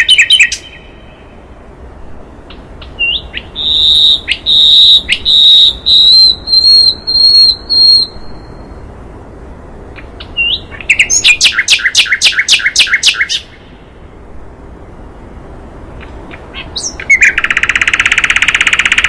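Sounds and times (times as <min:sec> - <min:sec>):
songbird whistling notes: 0:00.0 - 0:01.2, 0:02.8 - 0:08.8, 0:10.2 - 0:13.6, 0:16.3 - 0:19.0.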